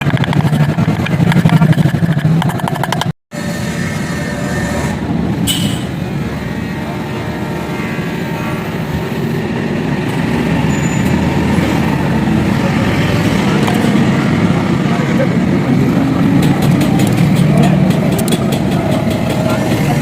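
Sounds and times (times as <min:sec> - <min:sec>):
motorcycle engine running: 0:00.0 - 0:03.1
brief high squeak: 0:04.4 - 0:05.9, 0:10.7 - 0:11.2.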